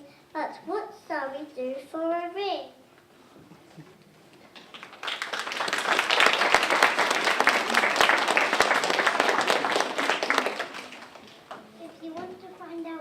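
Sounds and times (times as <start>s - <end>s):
audience applauding: 4.5s - 11.7s.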